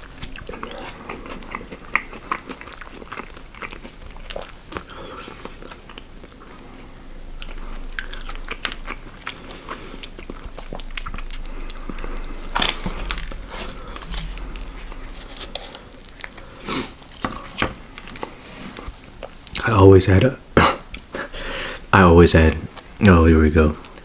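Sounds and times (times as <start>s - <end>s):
chewing and crunching bites: 0.0s - 15.3s.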